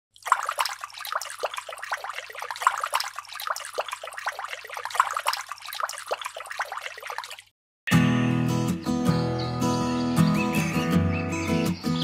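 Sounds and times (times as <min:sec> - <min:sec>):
fountain water splashing: 0:00.2 - 0:07.4.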